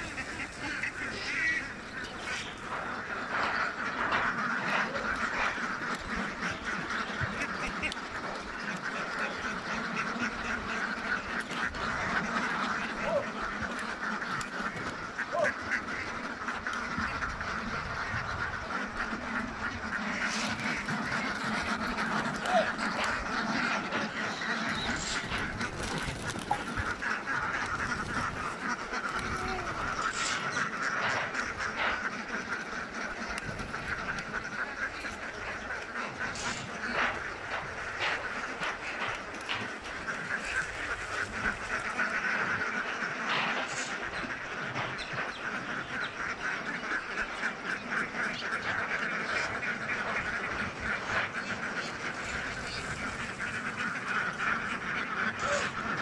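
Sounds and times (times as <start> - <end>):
flock of ducks quacking: 0.0 - 56.0.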